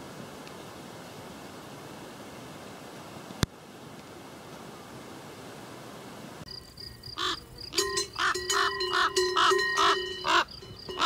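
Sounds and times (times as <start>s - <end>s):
wind hiss on microphone: 0.0s - 11.0s
bird's harsh loud calls: 7.1s - 11.0s.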